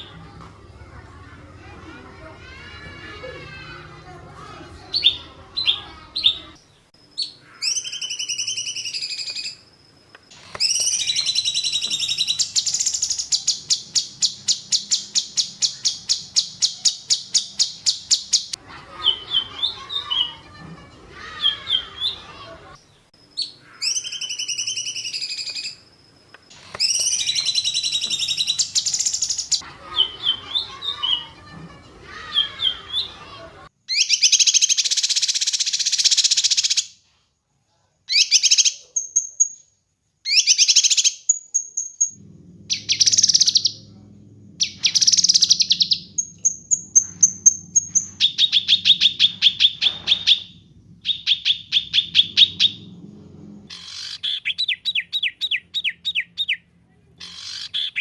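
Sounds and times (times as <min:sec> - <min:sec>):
songbird singing trills: 0:04.8 - 0:09.6, 0:10.6 - 0:20.5, 0:26.8 - 0:36.0.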